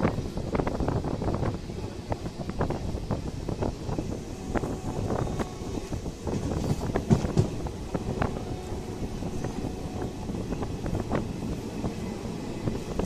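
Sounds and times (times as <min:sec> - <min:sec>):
train rumbling on track: 0:00.0 - 0:13.0
wind buffeting microphone: 0:00.0 - 0:13.0.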